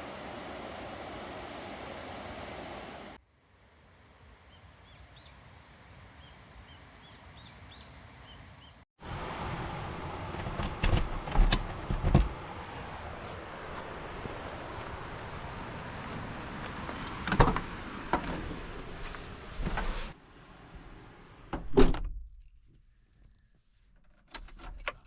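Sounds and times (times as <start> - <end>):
small birds chirping: 0.1 - 3.2.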